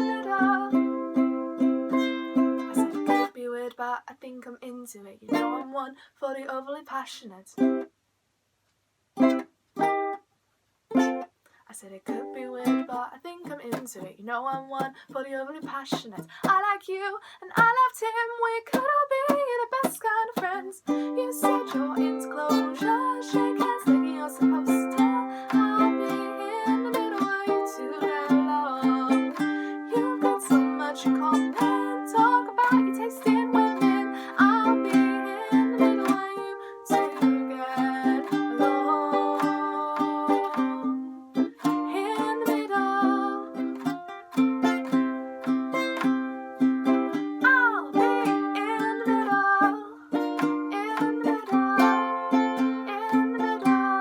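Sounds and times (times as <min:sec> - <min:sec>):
ukulele picked chords: 0:00.0 - 0:03.3, 0:18.7 - 0:54.0
wordless sung line: 0:12.1 - 0:46.5.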